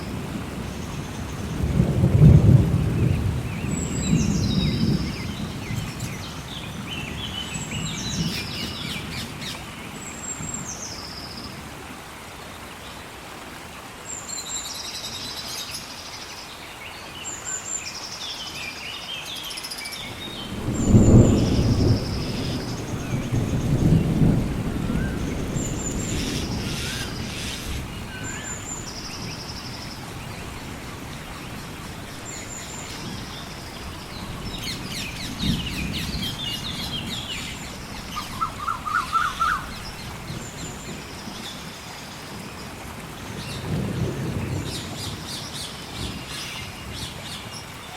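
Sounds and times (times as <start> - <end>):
thunder rumbling: 0.0 - 9.2, 20.0 - 41.7, 43.2 - 47.2
steady rain: 0.0 - 47.9
birds calling: 19.9 - 41.7.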